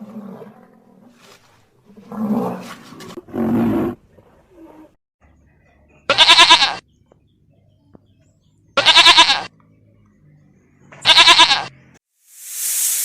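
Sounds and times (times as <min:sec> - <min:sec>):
goat bleating: 0:06.1 - 0:06.8, 0:08.8 - 0:09.5, 0:11.0 - 0:11.7.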